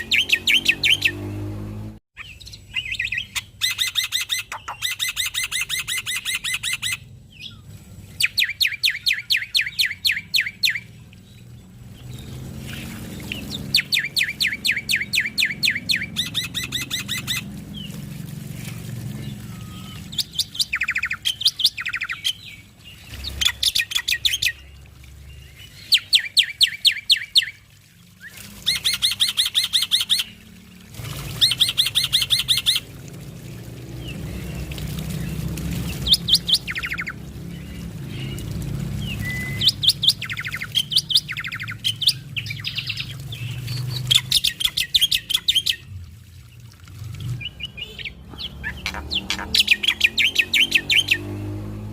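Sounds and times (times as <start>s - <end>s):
starling chattering song: 12.3s - 17.8s, 35.8s - 45.8s, 47.4s - 51.3s.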